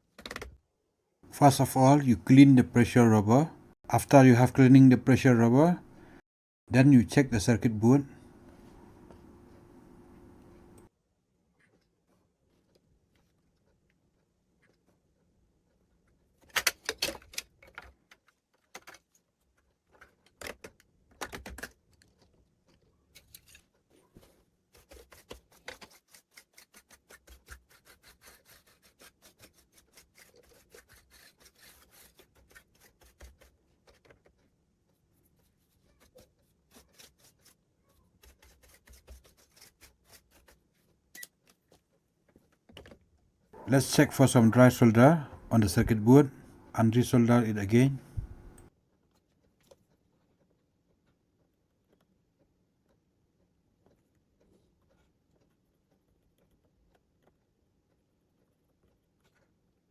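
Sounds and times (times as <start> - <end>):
hands handling keyboard parts: 0.0 - 0.6.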